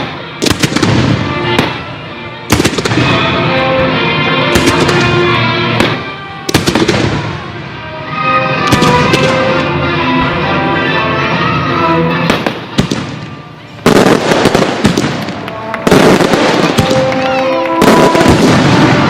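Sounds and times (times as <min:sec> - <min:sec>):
crackling firework bursts: 0:00.0 - 0:01.9, 0:02.5 - 0:07.6, 0:12.2 - 0:19.0
fireworks cracking: 0:00.0 - 0:07.6, 0:08.5 - 0:09.9, 0:12.1 - 0:19.0
music: 0:00.0 - 0:19.0.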